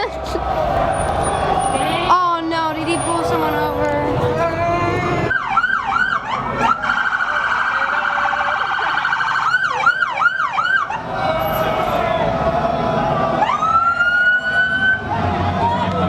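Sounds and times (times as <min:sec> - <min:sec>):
police siren yelping: 0:05.3 - 0:12.1, 0:13.2 - 0:15.2
police siren pulsing warble: 0:05.3 - 0:15.2.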